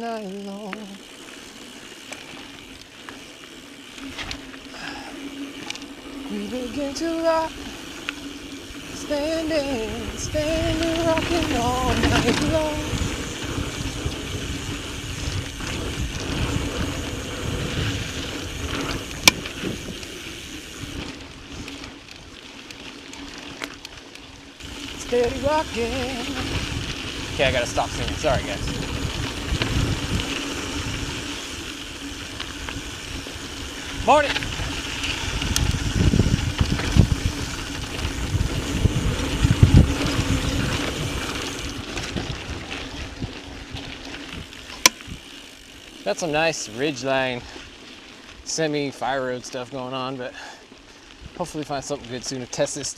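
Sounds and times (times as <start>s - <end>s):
bike tyres rumbling on dirt trail: 0.0s - 52.9s
wind on microphone: 8.7s - 21.8s, 24.6s - 31.6s, 32.5s - 45.3s.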